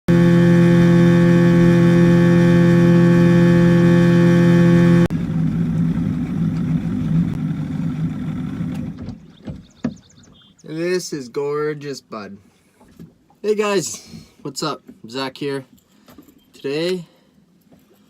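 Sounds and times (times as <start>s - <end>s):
boat motor running: 0.1s - 11.0s.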